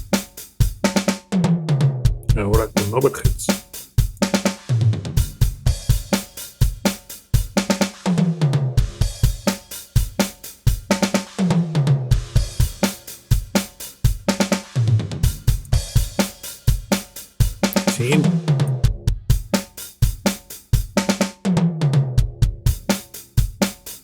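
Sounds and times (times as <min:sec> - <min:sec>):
drum kit beat: 0:02.2 - 0:04.5, 0:15.4 - 0:21.1.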